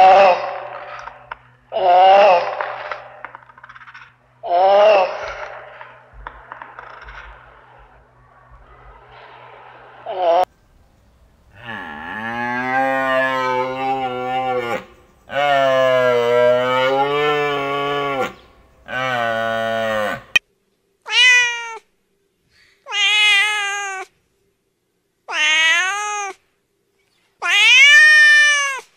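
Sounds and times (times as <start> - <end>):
cat meowing: 21.1 - 21.9, 22.9 - 24.1, 25.3 - 26.4, 27.4 - 28.9.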